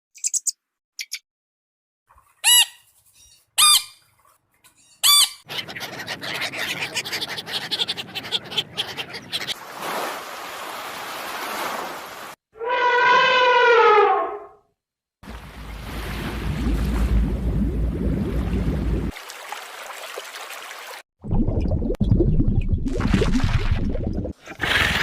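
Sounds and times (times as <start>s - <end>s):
animal shrill squawks: 2.4s - 2.8s, 3.6s - 4.0s, 5.0s - 5.6s, 12.6s - 14.6s
animal rapid chattering: 5.0s - 9.6s.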